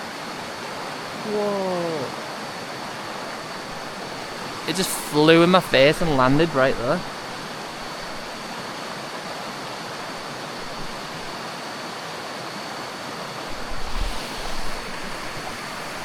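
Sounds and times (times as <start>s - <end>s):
faint high-pitched whine: 0.0s - 11.7s
stream water rushing: 0.0s - 16.0s.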